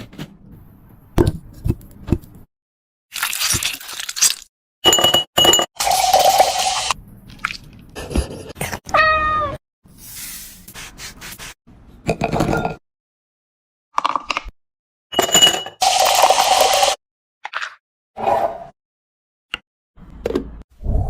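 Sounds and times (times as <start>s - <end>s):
pet meow-like cry: 8.9s - 9.6s.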